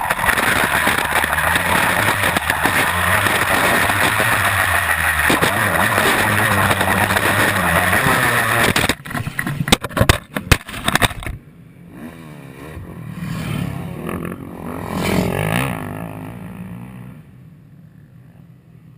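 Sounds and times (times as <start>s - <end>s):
motorcycle engine passing: 0.0s - 8.8s, 11.9s - 18.4s
dirt bike engine running loud: 0.0s - 9.7s
rapid clatter of sharp knocks: 0.0s - 11.4s
wind noise on camera: 0.0s - 11.4s.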